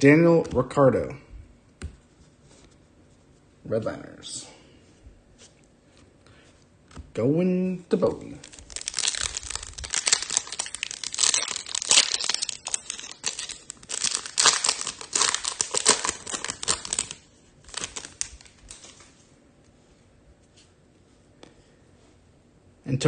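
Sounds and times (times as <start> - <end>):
foil wrapper crinkling and tearing: 8.3 - 19.1.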